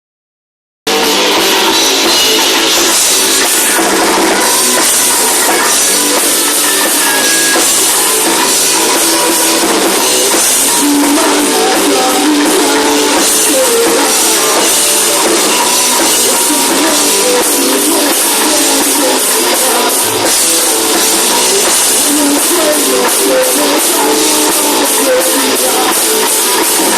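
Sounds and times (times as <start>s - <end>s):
rock band playing live: 0.9s - 26.9s.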